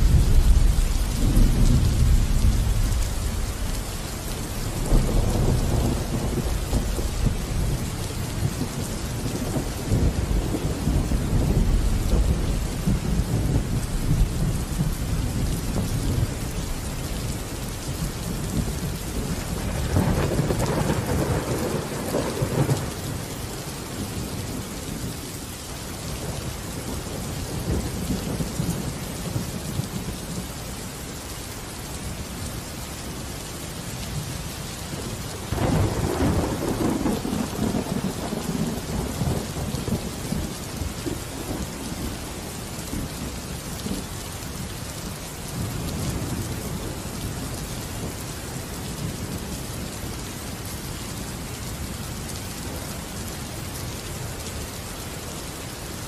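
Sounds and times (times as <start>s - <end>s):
thunder rumbling: 0.0s - 25.2s, 34.2s - 44.7s
rain falling: 0.0s - 56.0s.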